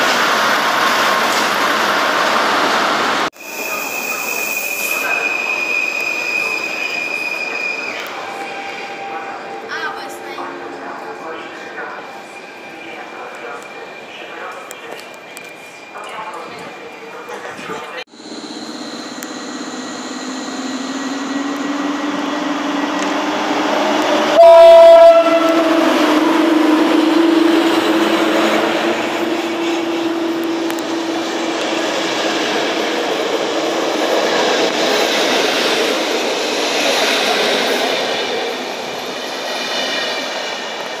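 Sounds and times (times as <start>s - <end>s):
locomotive hum: 5.0s - 41.0s
train horn: 24.2s - 26.7s.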